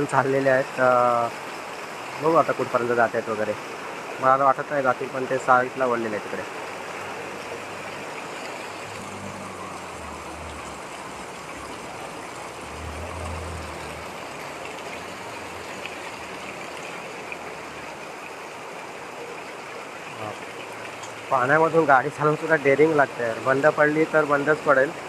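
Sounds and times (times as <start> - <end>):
floodwater rushing: 0.0 - 25.0
heavy rain: 0.0 - 25.0
vehicle engine running low: 8.7 - 17.7.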